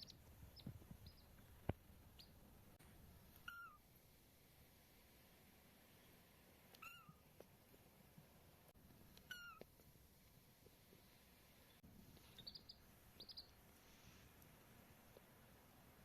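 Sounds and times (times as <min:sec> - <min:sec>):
chick peeping: 0:00.0 - 0:01.6, 0:12.2 - 0:13.6
kitten meowing: 0:03.4 - 0:03.8, 0:06.7 - 0:07.2, 0:09.3 - 0:09.7.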